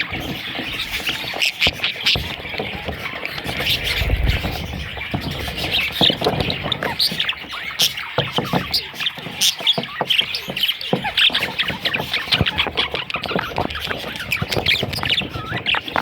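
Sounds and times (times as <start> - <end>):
budgerigars chirping and squawking: 0.0 - 16.0.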